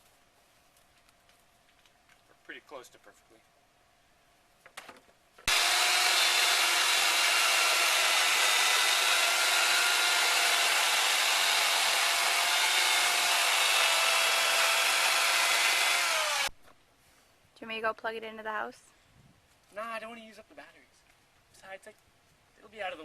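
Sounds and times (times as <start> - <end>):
electric chainsaw cutting wood: 5.4 - 16.5.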